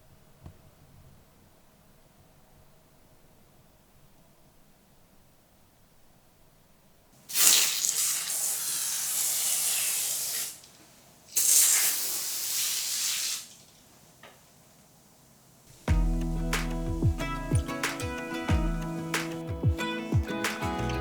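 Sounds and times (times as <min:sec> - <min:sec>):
water spraying: 0:07.3 - 0:13.8.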